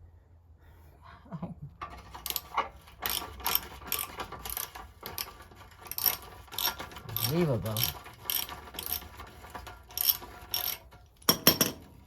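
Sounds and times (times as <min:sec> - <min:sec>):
hand ratchet clicking: 0:01.9 - 0:11.4.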